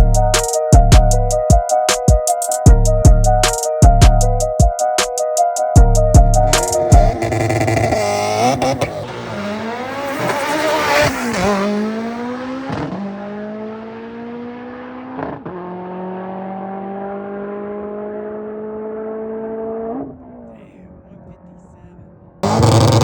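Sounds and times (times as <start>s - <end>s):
car engine revving: 6.5s - 19.9s, 22.4s - 23.0s.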